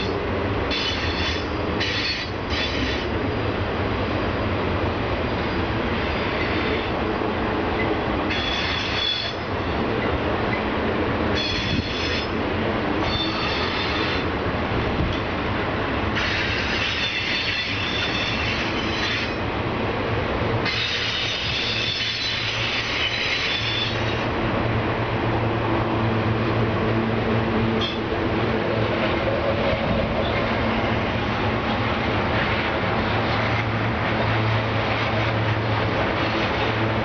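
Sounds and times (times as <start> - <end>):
train wheels squealing: 0.0 - 3.0, 5.3 - 6.9, 8.3 - 9.8, 11.4 - 12.4, 13.0 - 14.2, 16.2 - 19.4, 20.7 - 24.2
freight train rumbling: 0.0 - 37.0.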